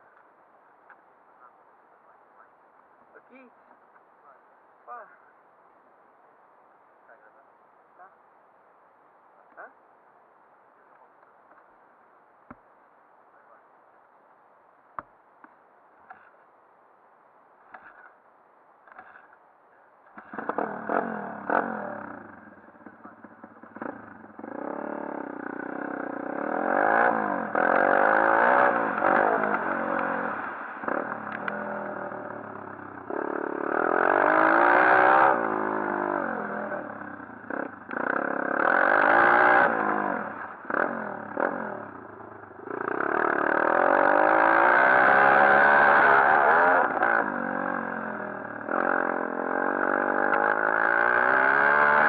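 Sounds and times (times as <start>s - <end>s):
pit bike engine revving: 20.1s - 52.0s.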